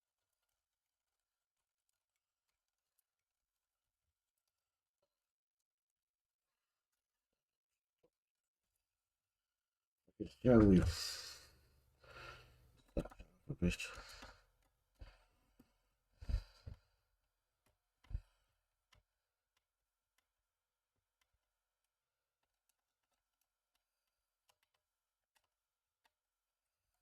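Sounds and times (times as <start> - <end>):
model parts clicking and knocking: 21.1 - 26.2.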